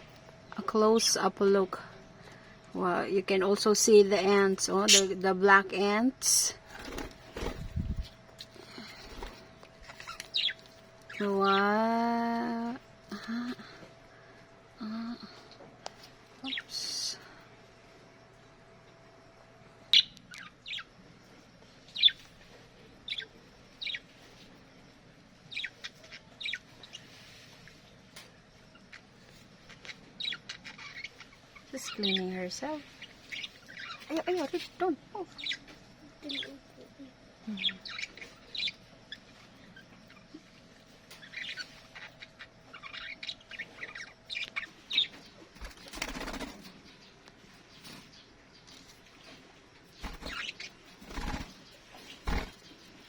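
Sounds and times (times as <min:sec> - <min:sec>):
budgerigars chirping: 0:04.8 - 0:05.2, 0:10.0 - 0:11.2, 0:50.0 - 0:52.6.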